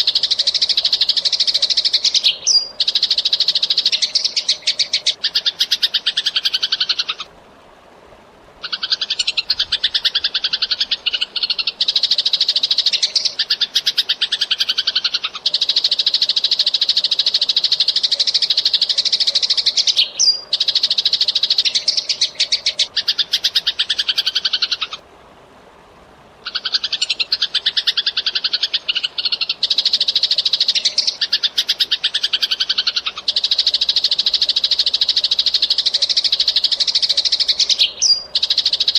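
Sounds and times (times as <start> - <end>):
sparrow chirping rapidly: 26.5 - 38.9.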